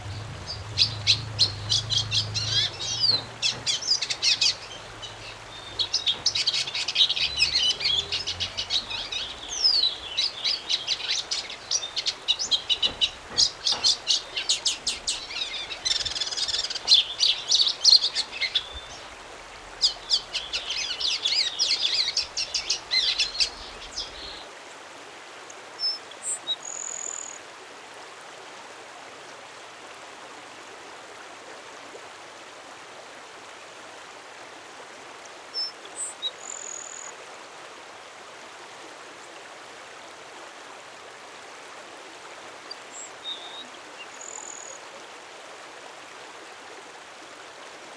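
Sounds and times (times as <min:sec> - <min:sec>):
songbird singing rapid high notes: 0:00.0 - 0:24.4.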